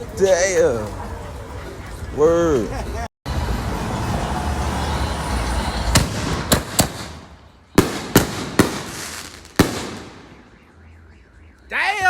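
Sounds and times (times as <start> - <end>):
firework rushing hiss: 5.9 - 10.3
firework bangs: 5.9 - 10.7.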